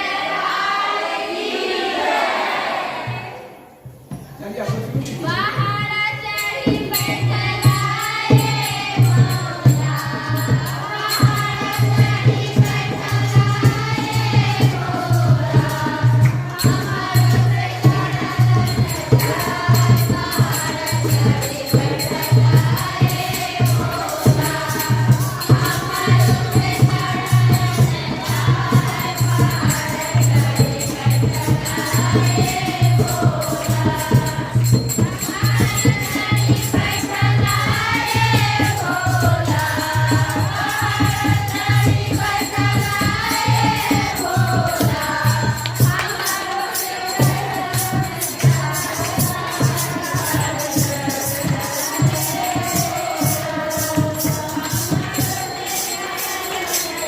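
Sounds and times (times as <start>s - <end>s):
group singing devotional song: 0.0s - 57.0s
fast drum percussion: 3.9s - 57.0s.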